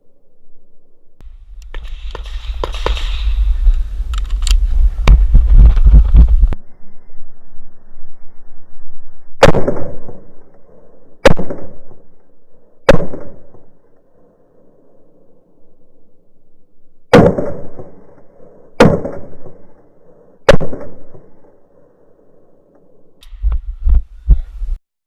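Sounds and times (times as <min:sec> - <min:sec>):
low rumble on microphone: 0:01.2 - 0:09.4, 0:23.2 - 0:24.8
pistol shots with echo: 0:12.9 - 0:13.6, 0:17.1 - 0:18.0, 0:18.8 - 0:19.6.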